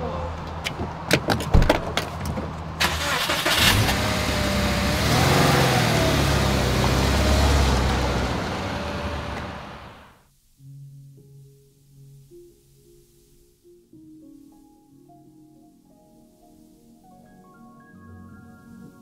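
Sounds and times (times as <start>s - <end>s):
car engine starting and revving: 2.8s - 10.2s.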